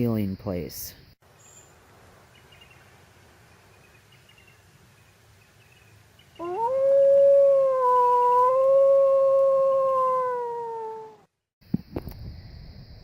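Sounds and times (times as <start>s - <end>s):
dog howling: 6.4s - 11.3s.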